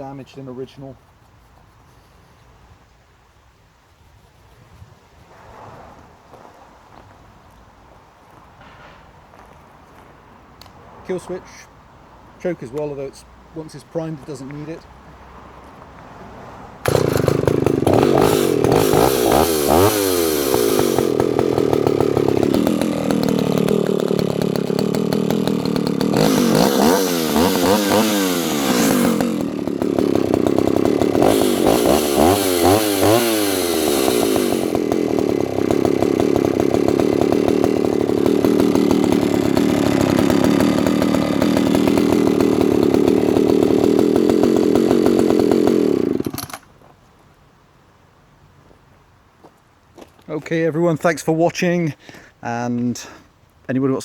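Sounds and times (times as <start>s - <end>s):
two-stroke chainsaw revving: 16.8s - 46.6s.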